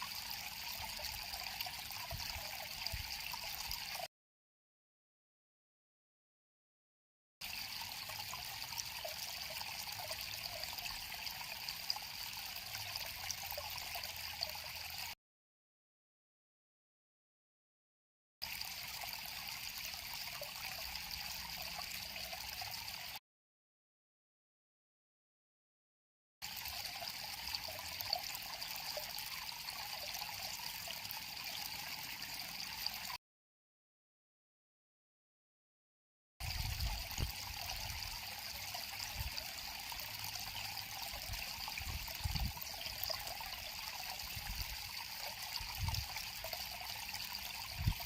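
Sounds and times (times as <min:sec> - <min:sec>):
river water trickling: 0:00.0 - 0:04.1, 0:07.4 - 0:15.2, 0:18.4 - 0:23.2, 0:26.4 - 0:33.2, 0:36.4 - 0:48.0
river water flowing: 0:36.4 - 0:48.0.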